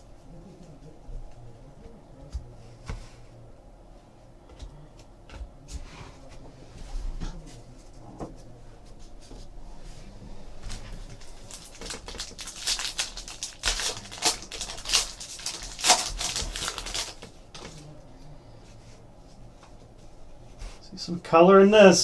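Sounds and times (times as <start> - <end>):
cards and pack crackling: 11.2 - 17.3.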